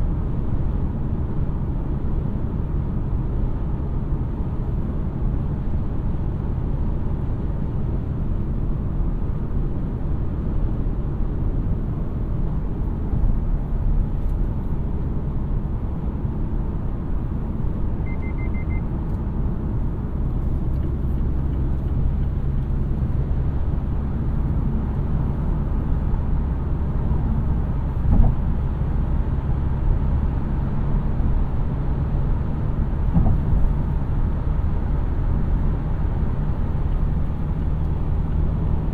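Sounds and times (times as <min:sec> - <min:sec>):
car engine and road noise: 0:00.0 - 0:38.9
quick high electronic beeps: 0:18.0 - 0:18.8
thump: 0:28.1 - 0:28.4, 0:33.1 - 0:33.6.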